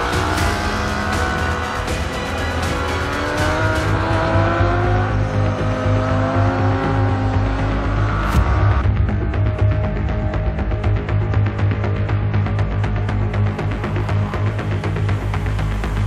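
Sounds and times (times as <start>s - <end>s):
motorcycles accelerating: 0.0s - 8.2s
music with bass beat: 0.0s - 16.0s.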